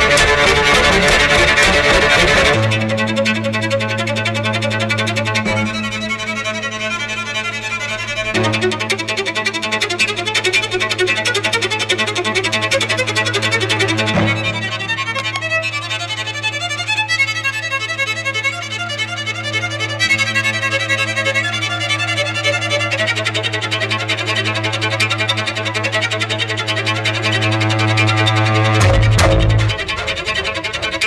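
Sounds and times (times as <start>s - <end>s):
low held drone: 0.0s - 15.9s
fast fiddle tune: 0.0s - 31.0s.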